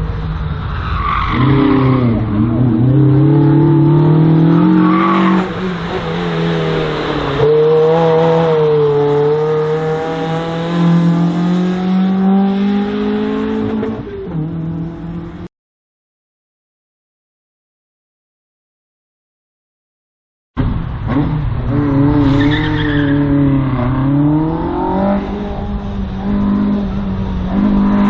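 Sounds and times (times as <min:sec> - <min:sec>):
race car engine revving: 0:01.3 - 0:15.5, 0:20.6 - 0:28.0.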